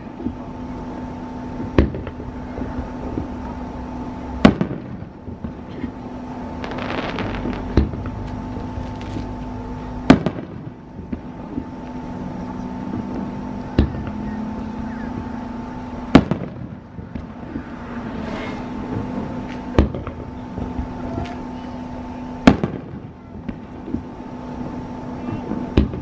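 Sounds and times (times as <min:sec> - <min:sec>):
steady low hum: 0:00.0 - 0:26.0
firework shells bursting: 0:04.4 - 0:09.5, 0:16.1 - 0:17.7.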